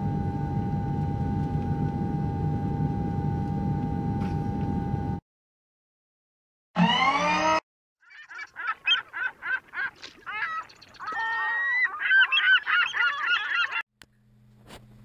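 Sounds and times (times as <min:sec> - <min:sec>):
honking animal calls: 0:08.1 - 0:13.8.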